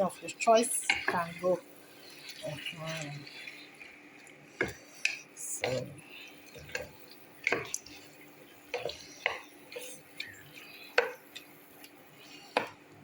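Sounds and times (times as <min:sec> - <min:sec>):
faint steady hum: 0:00.0 - 0:13.0
utensil clinking against pot: 0:02.3 - 0:08.1.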